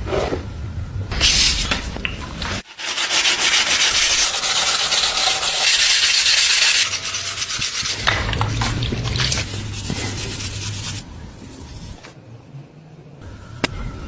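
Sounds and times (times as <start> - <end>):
sanding a knife blade: 2.6 - 8.0, 9.4 - 12.0.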